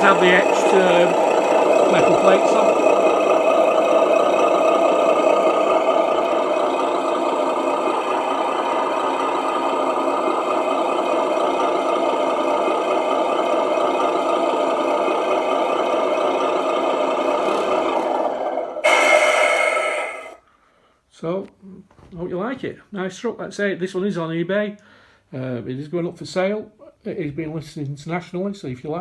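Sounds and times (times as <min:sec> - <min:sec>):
diesel truck engine idling through speaker: 0:00.0 - 0:20.2.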